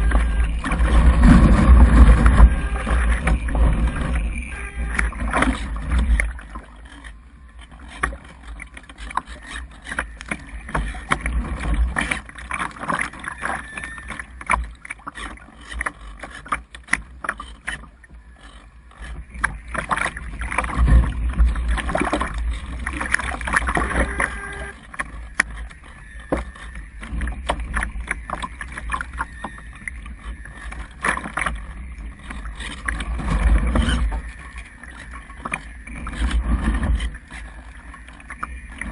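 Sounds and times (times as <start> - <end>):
gusty wind buffeting microphone: 0.0 - 6.5.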